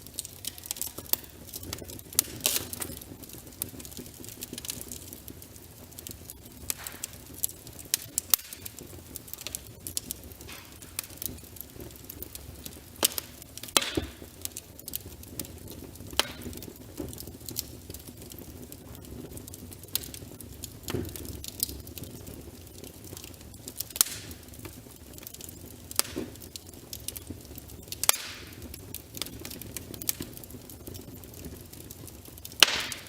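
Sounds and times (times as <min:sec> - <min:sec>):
burning logs popping: 0:00.0 - 0:33.0
fire crackling: 0:00.0 - 0:33.0
rumble of flames: 0:00.0 - 0:33.0.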